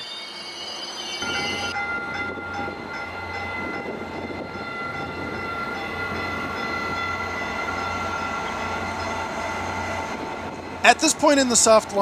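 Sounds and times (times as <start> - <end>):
diesel train engine drone: 0.0 - 12.0.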